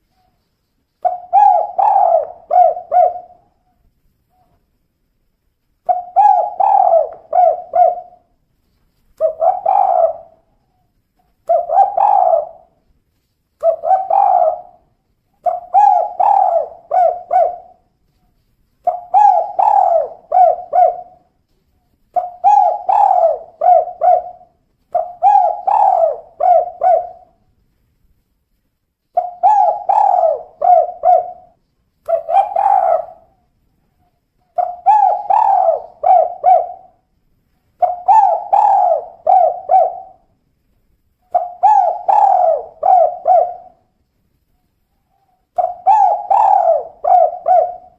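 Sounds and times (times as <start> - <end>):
dove cooing: 1.0 - 4.6, 5.8 - 8.4, 9.2 - 12.8, 13.6 - 17.9, 18.8 - 27.5, 29.1 - 33.4, 34.0 - 37.1, 37.8 - 40.3, 41.3 - 43.9, 44.9 - 47.9.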